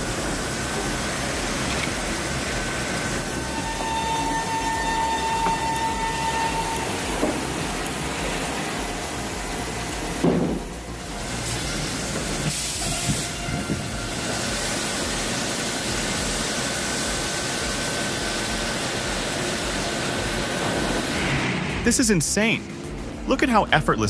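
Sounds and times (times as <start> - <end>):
loud machine clunk: 0.0 - 13.7
wood-processing machinery hissing: 0.0 - 22.8.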